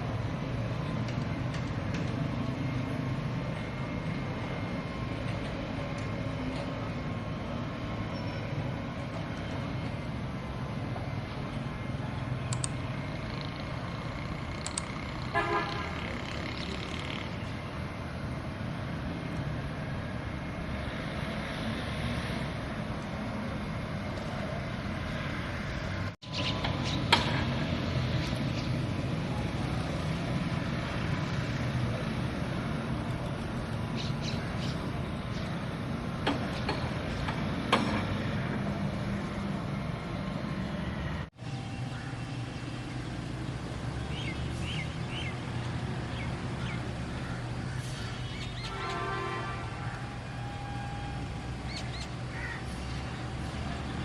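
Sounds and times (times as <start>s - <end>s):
street traffic noise: 0.0s - 54.0s
vehicle horn toot: 15.3s - 16.0s, 48.6s - 51.2s.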